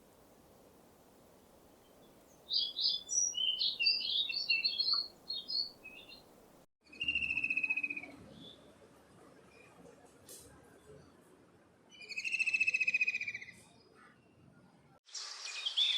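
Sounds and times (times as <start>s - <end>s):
songbird chirping and warbling: 1.7s - 8.7s, 15.1s - 15.9s
bird trill: 2.5s - 6.2s.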